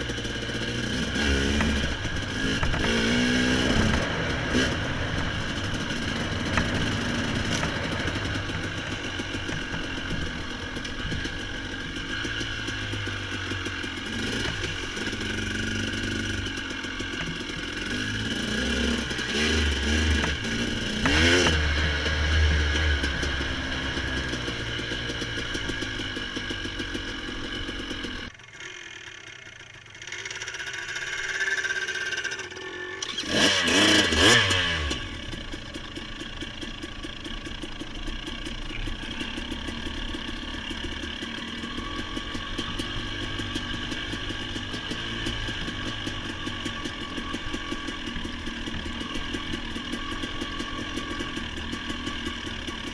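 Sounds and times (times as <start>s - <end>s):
vehicle engine revving: 0.0s - 28.3s, 31.7s - 52.9s.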